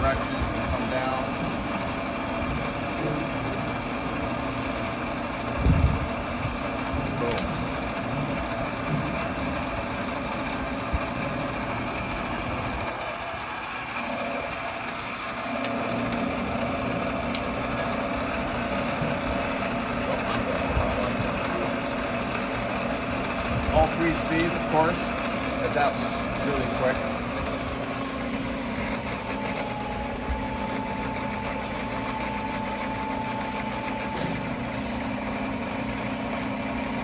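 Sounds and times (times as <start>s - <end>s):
milling machine humming and whining: 0.0s - 37.0s
sharp clicks: 7.3s - 7.5s, 15.6s - 17.5s.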